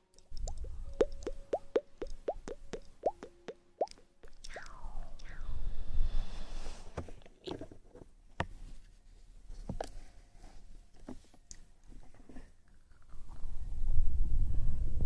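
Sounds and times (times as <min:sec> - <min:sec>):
mouth clicks and smacks: 0:00.1 - 0:05.5.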